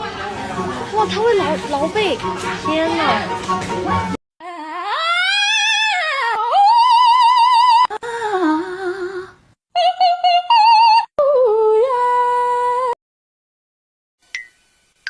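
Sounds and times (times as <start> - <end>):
high voice singing long notes: 4.4 - 13.0.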